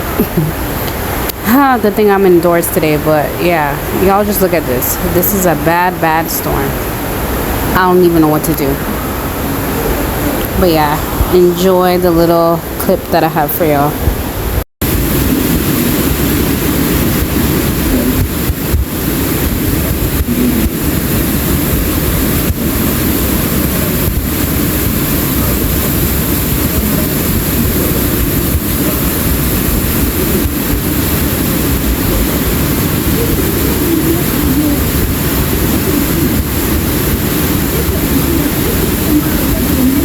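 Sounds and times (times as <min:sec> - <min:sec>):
heavy rain pouring: 0:00.0 - 0:40.0
deep rumble: 0:14.8 - 0:40.0.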